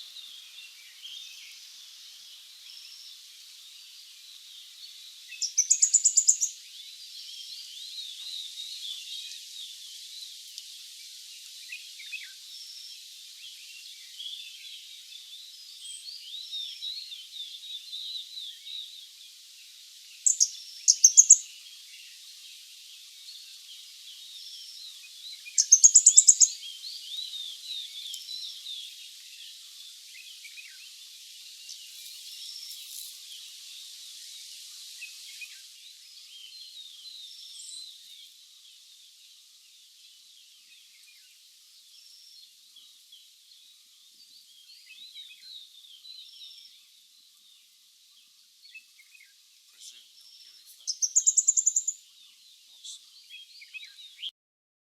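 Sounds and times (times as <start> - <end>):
faint chirps of birds and insects: 0.0 - 54.3
bird high ticking calls: 5.4 - 6.6, 20.2 - 21.5, 25.4 - 26.7, 50.8 - 52.0.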